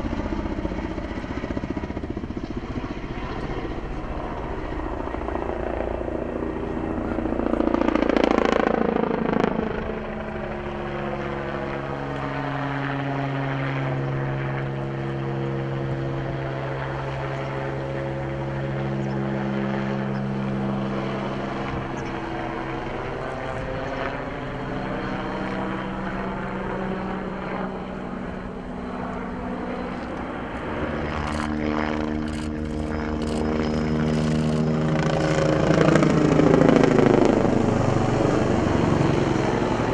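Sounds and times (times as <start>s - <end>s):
helicopter flying past: 0.0s - 39.9s
sharp clicks: 31.3s - 33.5s, 34.1s - 35.4s.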